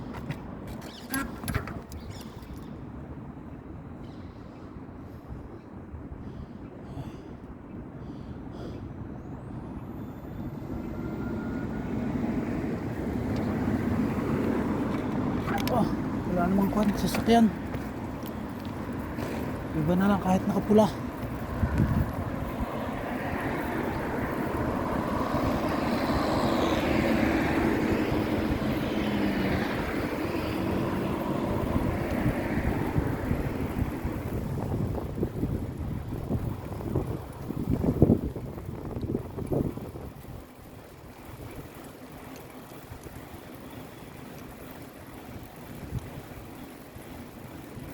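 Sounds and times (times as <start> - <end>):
road traffic rumble: 0.0 - 47.9
motor passing by: 22.8 - 32.6.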